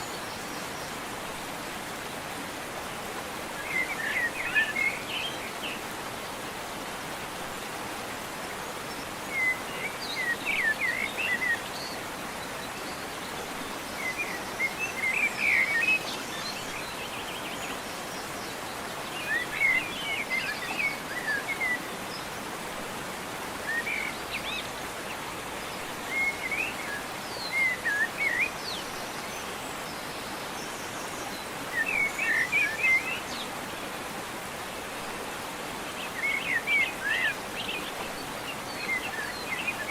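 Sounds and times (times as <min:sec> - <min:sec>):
songbirds chirping: 0:00.0 - 0:39.9
waterfall rushing: 0:00.0 - 0:39.9.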